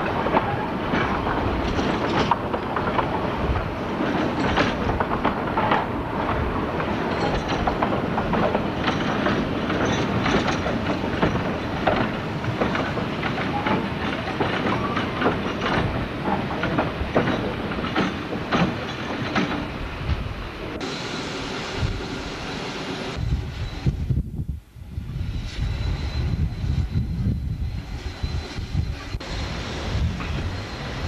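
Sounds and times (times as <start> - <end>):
wheels clicking over rail joints: 0.0 - 19.8
train wheels rumbling on rail: 0.0 - 31.0.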